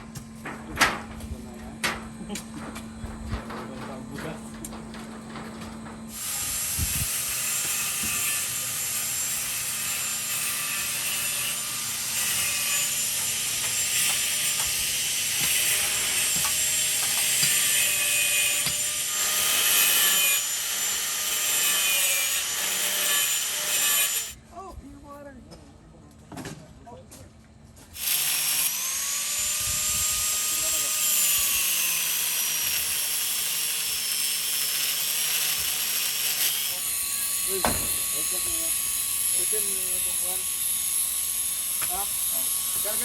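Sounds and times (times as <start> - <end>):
power cutting tool whining: 28.0 - 43.0.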